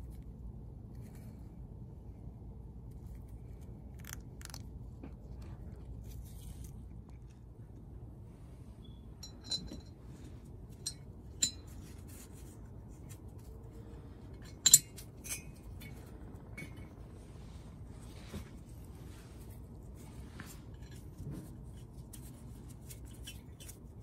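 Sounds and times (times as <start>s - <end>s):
metallic clinks of bolts: 9.2s - 9.9s, 14.4s - 15.6s.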